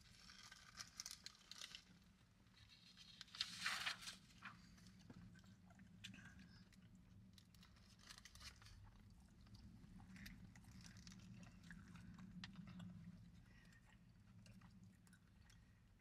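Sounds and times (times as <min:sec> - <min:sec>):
people chewing food: 0:04.6 - 0:16.0.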